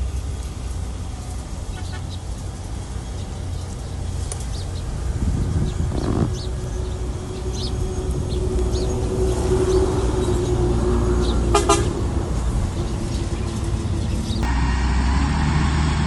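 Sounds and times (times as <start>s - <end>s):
diesel engine rumbling: 0.0s - 16.0s
steady drawn-out tone: 5.2s - 16.0s.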